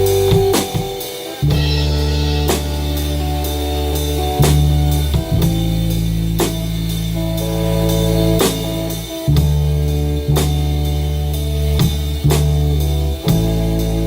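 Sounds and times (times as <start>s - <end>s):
bass guitar low notes: 0.0s - 14.0s
drum kit with cymbal hits: 0.0s - 14.0s
guitar: 0.0s - 14.0s.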